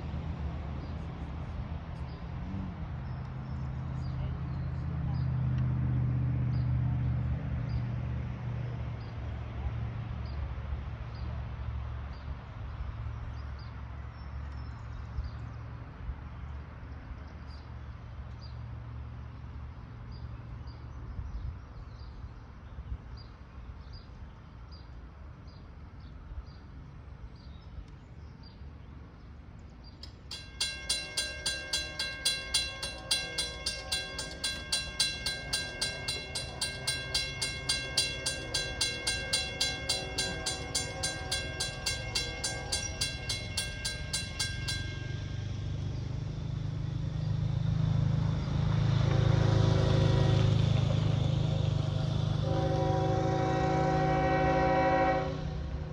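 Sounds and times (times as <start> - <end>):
railroad warning bell ringing: 30.0 - 48.2, 52.4 - 55.9.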